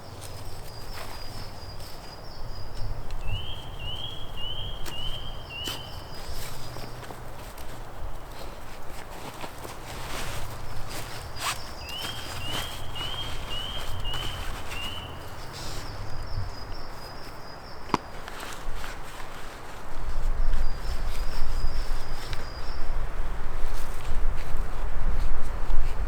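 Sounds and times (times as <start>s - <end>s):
bird chirping: 0.6s - 7.0s, 10.9s - 17.9s
low rumbling footsteps: 6.4s - 16.9s.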